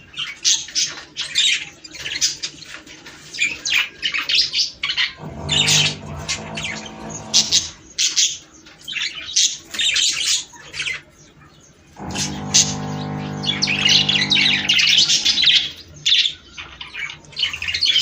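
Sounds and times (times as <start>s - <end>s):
low hum: 5.2s - 7.8s, 12.0s - 15.7s.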